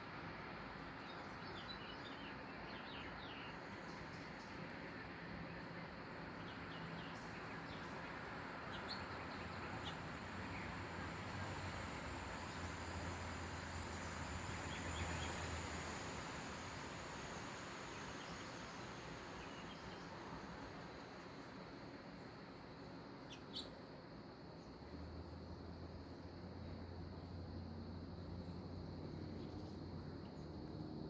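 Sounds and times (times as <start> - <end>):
steady background hiss: 0.0 - 31.0
faint bird chirps: 1.0 - 10.8, 17.9 - 20.3, 22.6 - 23.9.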